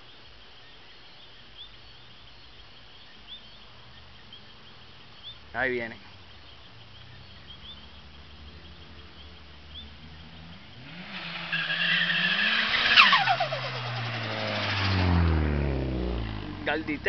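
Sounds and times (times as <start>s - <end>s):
turbo engine accelerating: 6.8s - 17.0s
turbo flutter: 12.3s - 15.3s.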